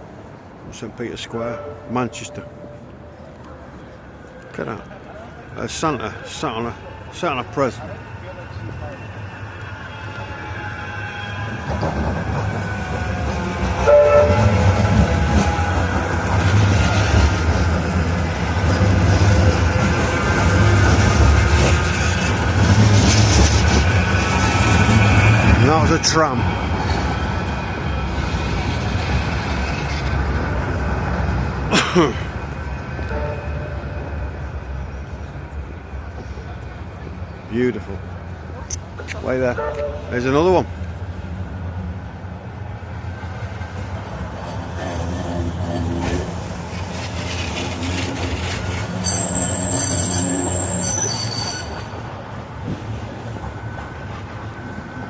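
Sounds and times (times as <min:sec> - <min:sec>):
city traffic and trams rumbling: 0:00.0 - 0:55.0
loud shrill sound: 0:49.0 - 0:52.0.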